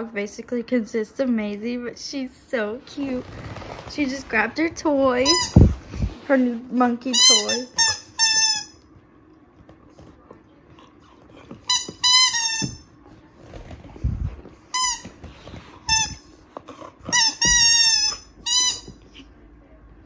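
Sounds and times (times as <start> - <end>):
dog toy squeaking: 5.2 - 5.7, 7.1 - 8.8, 11.7 - 12.9, 15.9 - 16.2, 17.1 - 19.0
dull thumps of toy: 17.1 - 19.1.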